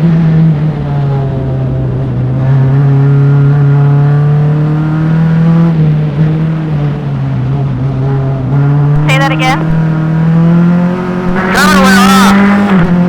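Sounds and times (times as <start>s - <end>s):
race car engine under load: 0.0s - 13.0s.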